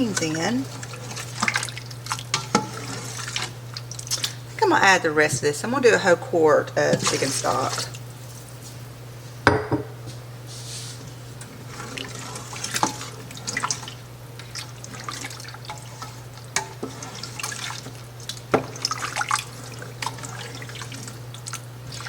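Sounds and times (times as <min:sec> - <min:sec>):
liquid pouring into a pot: 0:00.7 - 0:04.4, 0:11.7 - 0:22.0.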